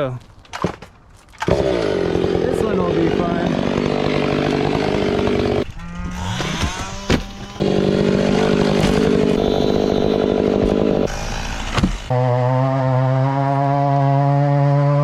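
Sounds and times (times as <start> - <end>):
chainsaw revving and idling: 1.4 - 12.2.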